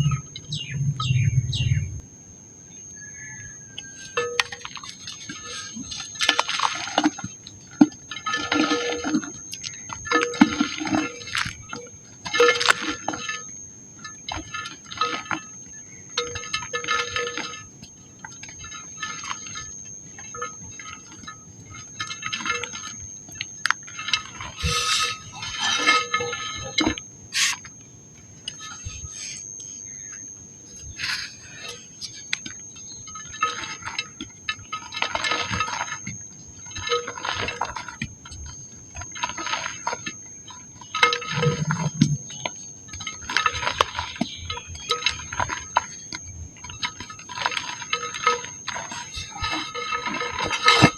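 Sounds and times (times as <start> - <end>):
high-pitched tone bursts: 0.0 - 2.1
faint high whine: 0.0 - 50.9
dry mud crumbling: 38.9 - 50.9.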